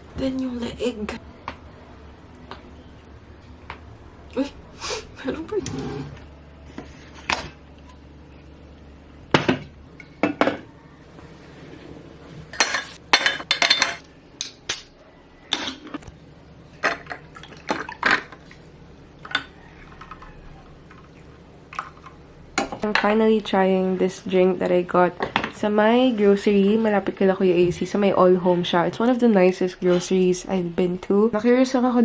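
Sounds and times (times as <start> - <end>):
kitchenware and glassware clinking: 12.5 - 14.0.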